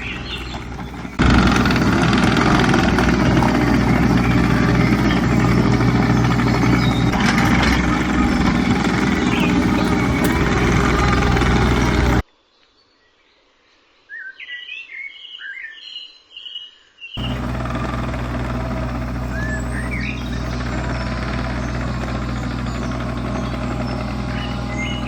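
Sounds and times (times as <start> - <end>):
digger engine running: 0.0 - 12.2, 17.2 - 25.0.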